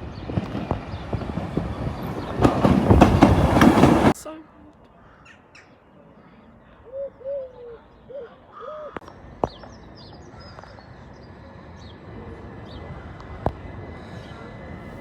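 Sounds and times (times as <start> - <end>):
birds calling: 0.2 - 4.2.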